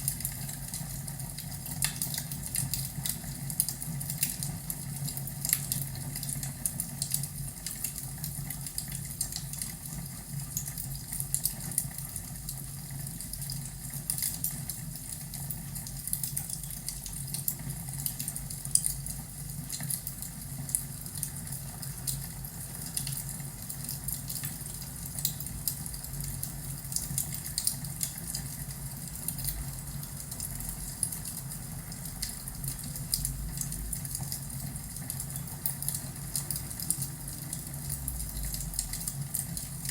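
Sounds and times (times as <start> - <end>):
fire low rumble: 28.6 - 39.9.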